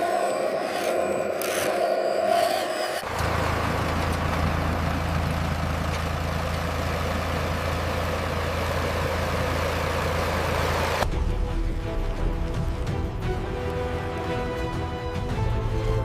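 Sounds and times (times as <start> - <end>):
diesel engine idling: 3.0 - 11.0.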